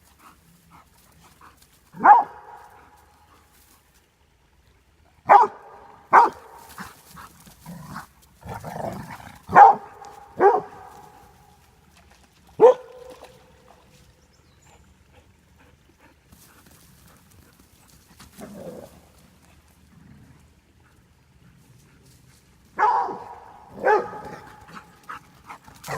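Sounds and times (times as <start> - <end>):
dogs barking: 2.0 - 2.9, 5.3 - 6.6, 9.5 - 11.1, 12.6 - 13.1, 22.8 - 24.9.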